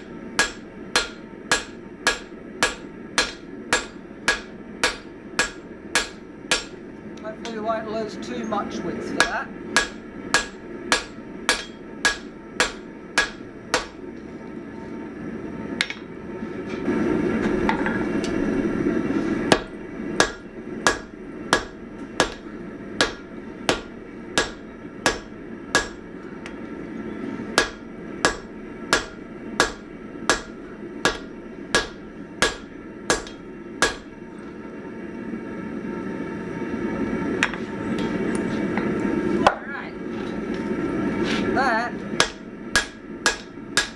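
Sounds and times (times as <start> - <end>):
hammer striking hot metal on anvil: 0.0 - 6.8, 9.1 - 14.1, 19.5 - 26.2, 27.6 - 34.2, 42.2 - 43.9.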